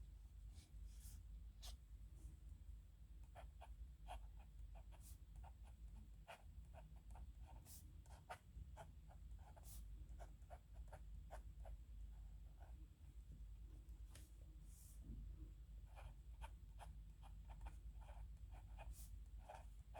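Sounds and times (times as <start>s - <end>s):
faint low hum: 0.0s - 19.9s
pen scratching on paper: 17.2s - 19.7s.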